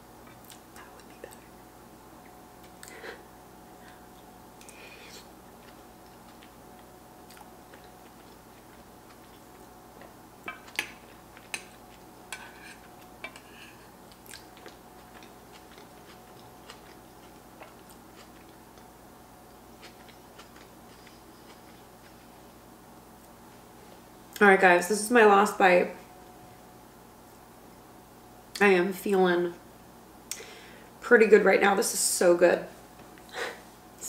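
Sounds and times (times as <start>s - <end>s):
faint steady hum: 0.0s - 34.0s
chewing with wet mouth smacks: 5.6s - 10.8s.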